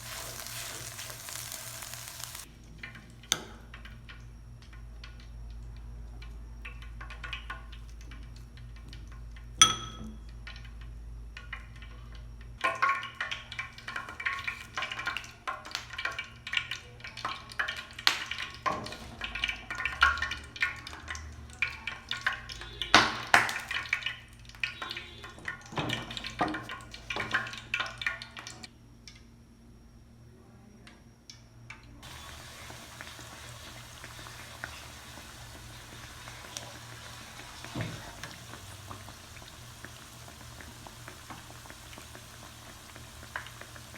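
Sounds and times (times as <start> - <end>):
oil frying hiss: 0.0 - 3.0, 12.7 - 28.7, 32.0 - 43.9.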